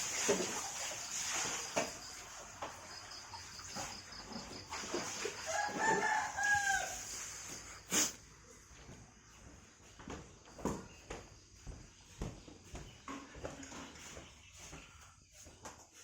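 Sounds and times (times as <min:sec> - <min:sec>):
rooster crowing: 0:05.3 - 0:07.3.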